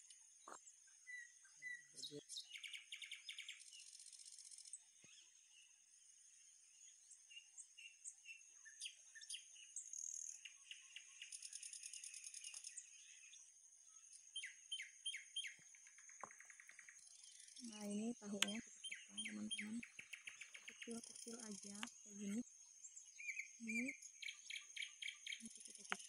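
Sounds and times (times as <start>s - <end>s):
faint birds chirping: 0.0s - 26.0s
bird trill: 0.9s - 5.3s, 14.0s - 22.4s, 23.0s - 26.0s.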